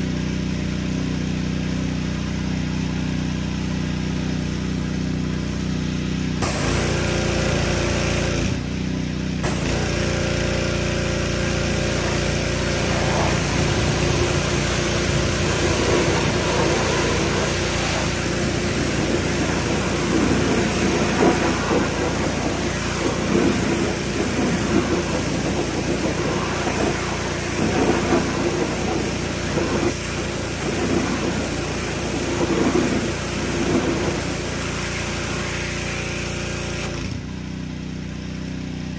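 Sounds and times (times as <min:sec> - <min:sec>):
engine running: 0:00.0 - 0:38.9.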